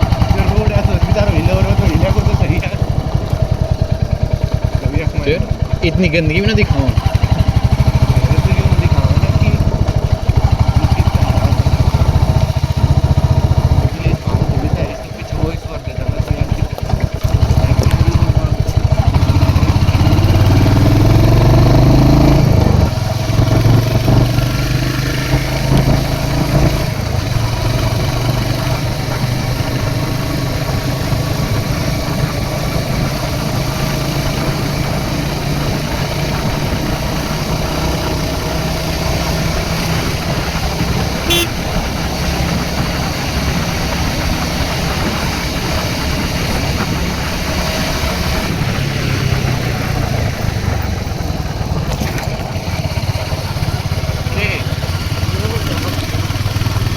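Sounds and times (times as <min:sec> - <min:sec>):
motorcycle engine accelerating: 0:00.0 - 0:56.9
horn toot: 0:41.0 - 0:42.0.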